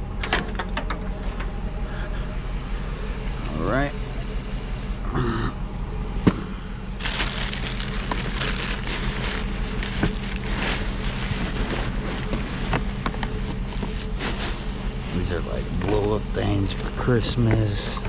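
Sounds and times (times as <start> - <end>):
steady low hum: 0.0 - 18.0
rustling and crinkling of junk: 6.2 - 18.0.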